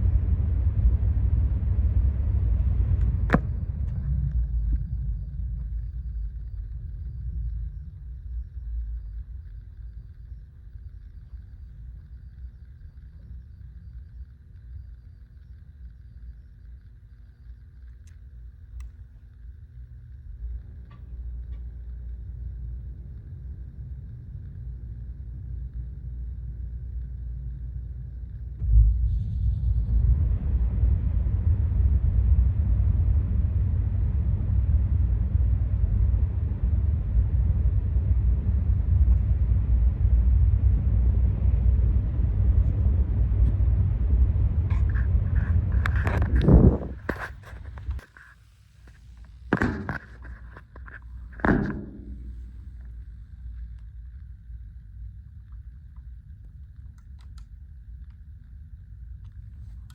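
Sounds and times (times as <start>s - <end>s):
loud low rumble: 0.0s - 13.5s, 26.4s - 48.0s, 49.5s - 55.8s
machine hum: 0.0s - 59.9s.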